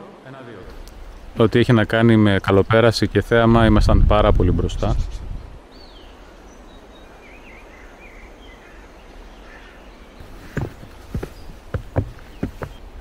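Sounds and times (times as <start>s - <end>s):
small birds chirping: 0.6s - 3.6s, 5.0s - 13.0s
footsteps: 10.2s - 12.8s.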